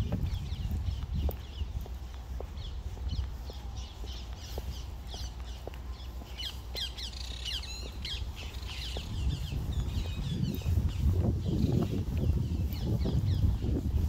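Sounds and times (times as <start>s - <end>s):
birds calling: 0.0s - 13.8s.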